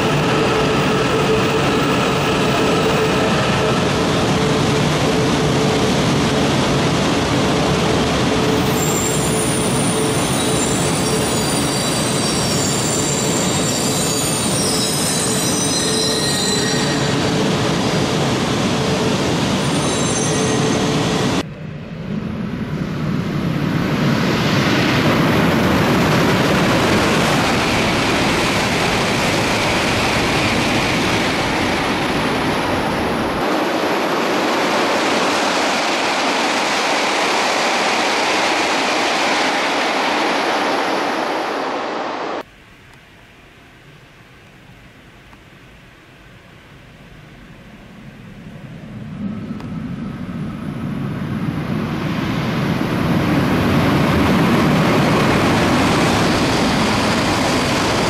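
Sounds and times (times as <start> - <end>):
steady rushing noise: 0.0 - 10.1, 20.8 - 42.5, 47.6 - 58.0
train wheels rumbling: 0.0 - 41.8, 48.3 - 58.0
thin high squealing tones: 8.6 - 17.3, 19.6 - 21.1.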